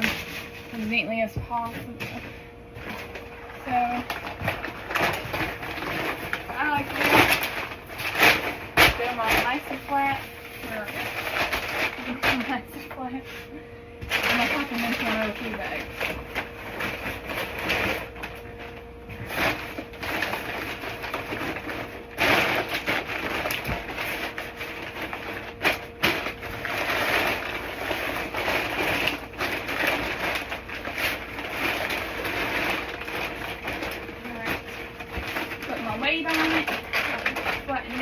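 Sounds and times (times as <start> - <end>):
sharp crackles of bags: 0.0 - 13.0, 14.0 - 38.0
feed bags crinkling: 0.0 - 38.0.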